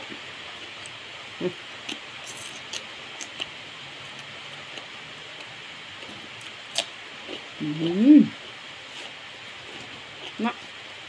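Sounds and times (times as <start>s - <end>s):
steady hiss: 0.0s - 11.0s
person chewing: 1.8s - 3.5s, 4.1s - 7.6s, 8.9s - 10.4s.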